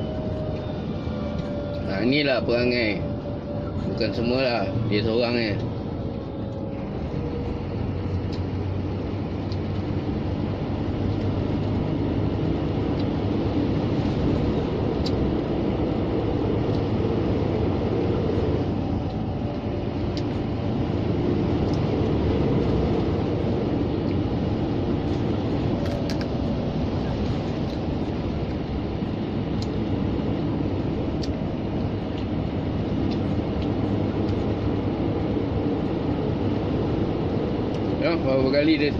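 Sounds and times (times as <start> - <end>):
truck engine and road noise: 0.0 - 38.9.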